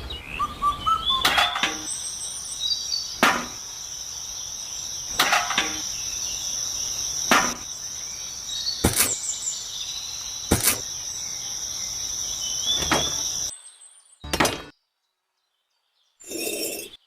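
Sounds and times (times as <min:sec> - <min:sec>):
insects chirring: 0:00.1 - 0:14.7
sharp knocks: 0:03.2 - 0:03.6, 0:05.2 - 0:05.9, 0:07.3 - 0:07.6.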